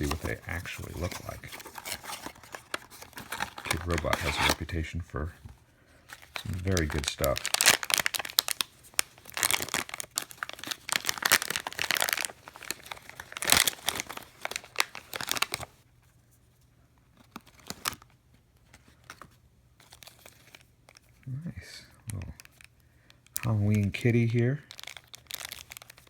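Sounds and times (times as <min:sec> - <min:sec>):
cardboard and foil tearing: 0:00.0 - 0:04.8, 0:06.1 - 0:15.7, 0:24.7 - 0:26.0.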